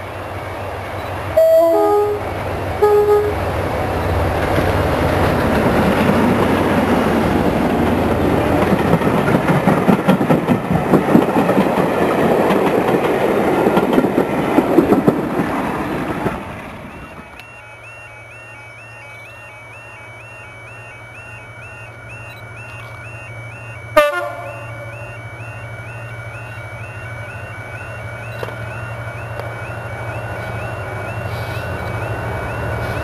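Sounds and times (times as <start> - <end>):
locomotive engine noise: 0.0 - 33.0
train horn blast: 1.4 - 3.6, 24.0 - 24.6
train wheels clattering over rail joints: 4.2 - 16.8.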